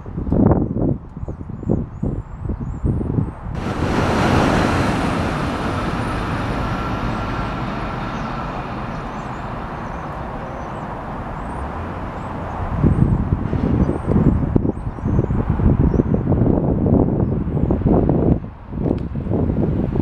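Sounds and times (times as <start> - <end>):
electric train rushing past: 3.6 - 14.4.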